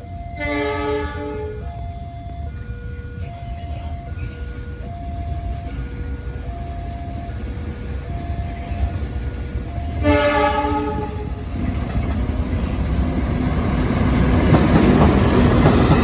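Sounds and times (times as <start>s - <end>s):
two-tone level crossing alarm: 0.0s - 7.5s, 9.6s - 11.1s
train horn: 0.3s - 1.8s, 9.7s - 11.5s.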